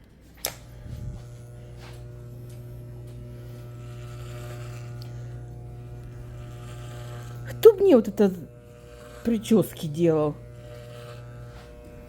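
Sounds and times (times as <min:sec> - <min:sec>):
hair clippers buzzing: 0:00.1 - 0:12.0
hair clippers switch click: 0:00.4 - 0:06.2.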